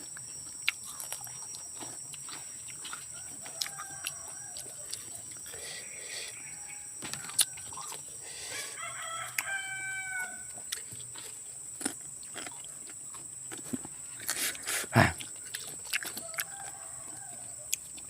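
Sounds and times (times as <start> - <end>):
steady high whine: 0.0 - 8.8
rooster crowing: 2.8 - 10.6, 16.0 - 17.8.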